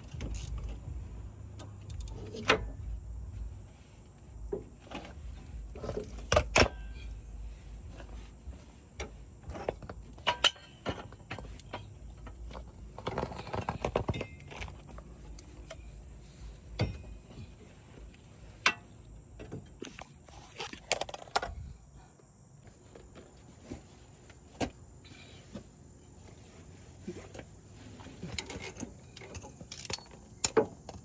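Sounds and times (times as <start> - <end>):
jangling rattle: 0.0 - 2.8
metallic clinks of hand tools: 28.4 - 30.6.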